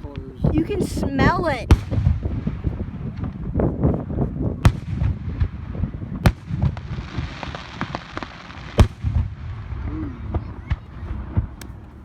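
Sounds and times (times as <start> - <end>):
firework bangs: 0.0 - 12.0
small firework pops: 1.7 - 3.6, 6.2 - 12.0.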